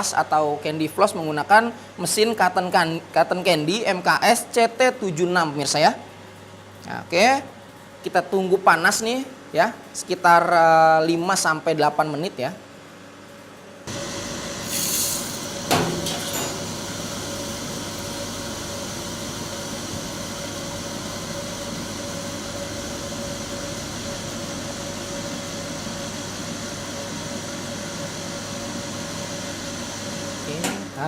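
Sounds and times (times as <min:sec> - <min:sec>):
cotton candy machine motor humming: 0:13.9 - 0:31.0.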